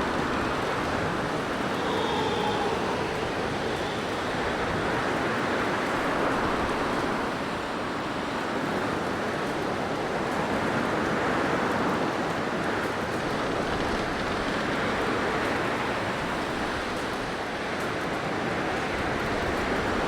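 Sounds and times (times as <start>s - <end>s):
blizzard wind rushing: 0.0s - 7.6s.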